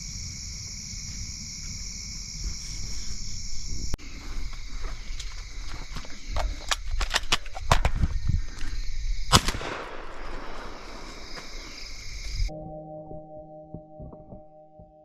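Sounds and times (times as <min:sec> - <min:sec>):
crickets chirring: 0:00.0 - 0:12.6
shotgun shot echoing: 0:09.3 - 0:11.1.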